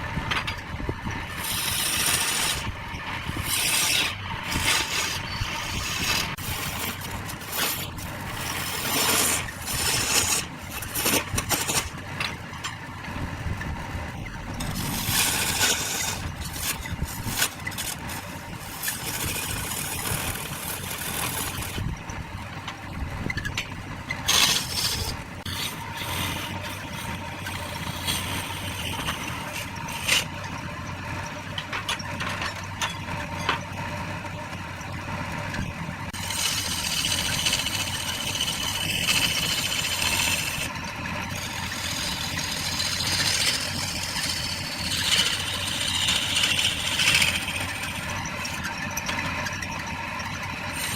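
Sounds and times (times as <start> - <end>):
wood lathe motor hum: 1.2 - 12.2, 13.8 - 22.2, 24.0 - 31.4, 36.1 - 50.9
turning tool scraping wood: 1.2 - 12.7, 14.5 - 21.9, 24.1 - 30.6, 36.1 - 49.7, 50.6 - 50.9.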